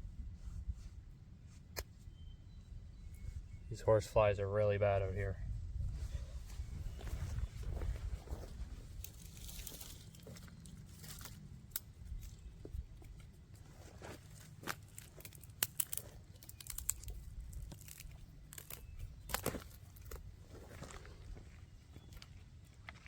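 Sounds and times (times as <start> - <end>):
cardboard and sticks crackling: 9.0 - 20.9.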